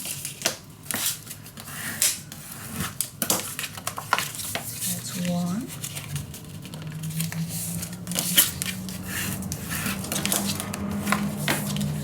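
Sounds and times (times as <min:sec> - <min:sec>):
paper rustling: 0:00.0 - 0:12.0
steady low hum: 0:04.6 - 0:12.0.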